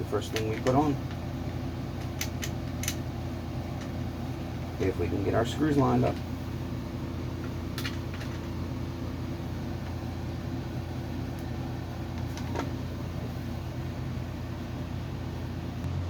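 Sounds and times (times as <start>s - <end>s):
low machine hum: 0.0s - 16.0s
light clicks of small parts: 0.3s - 1.2s, 2.0s - 3.0s.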